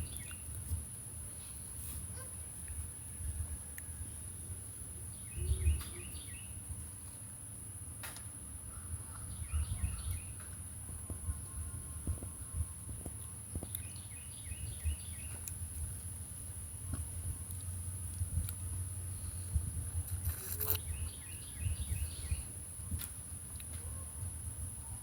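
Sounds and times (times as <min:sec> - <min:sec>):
bird chirping: 0:00.0 - 0:00.6, 0:05.1 - 0:06.6, 0:09.1 - 0:10.6, 0:13.5 - 0:15.6, 0:20.3 - 0:22.6.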